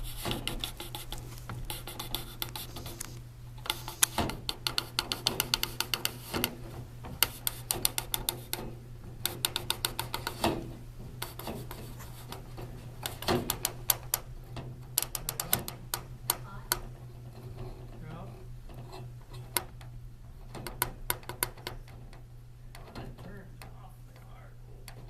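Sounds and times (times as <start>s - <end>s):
steady low hum: 0.0s - 25.0s
sharp clicks and taps: 0.2s - 10.6s, 13.0s - 14.3s, 15.0s - 16.9s, 20.5s - 25.0s.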